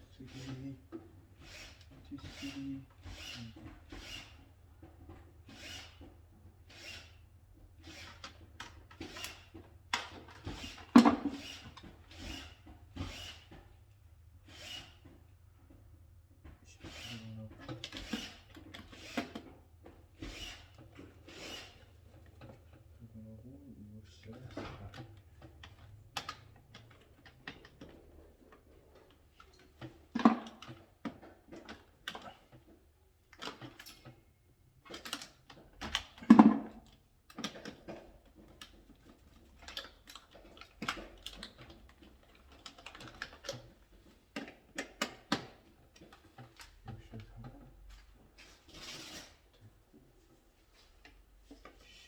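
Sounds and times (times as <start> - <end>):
hand tools clicking and knocking: 24.3 - 34.2, 34.8 - 48.1.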